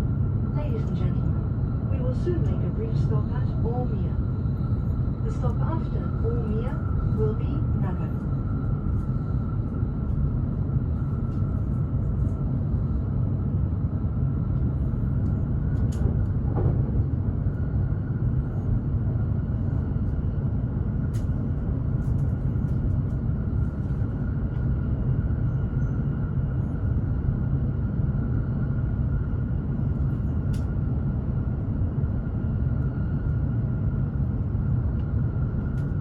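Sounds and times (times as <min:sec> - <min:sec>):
faint steady whine: 0:00.0 - 0:16.4
train cabin low rumble: 0:00.0 - 0:36.0.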